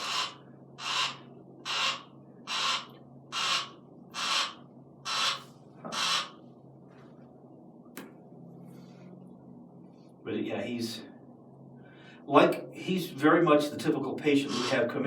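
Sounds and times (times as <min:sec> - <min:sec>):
barn owl hissing: 0:00.0 - 0:06.4, 0:14.4 - 0:14.9.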